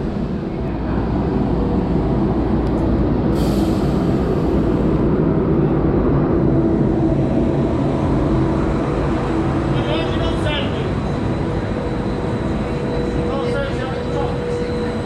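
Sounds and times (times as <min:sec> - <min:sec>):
train rumbling: 0:00.0 - 0:15.0
short hiss of air: 0:03.3 - 0:04.9.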